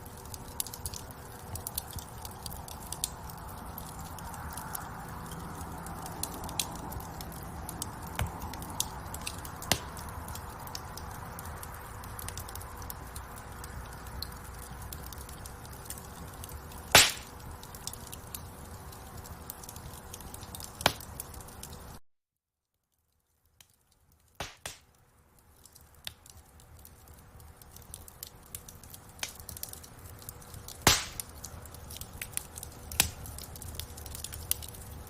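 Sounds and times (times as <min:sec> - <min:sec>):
wood fire crackling: 0:00.0 - 0:22.0, 0:22.9 - 0:35.0
loud pops from fire: 0:00.2 - 0:11.5, 0:12.1 - 0:21.9, 0:23.7 - 0:24.9, 0:26.0 - 0:35.0.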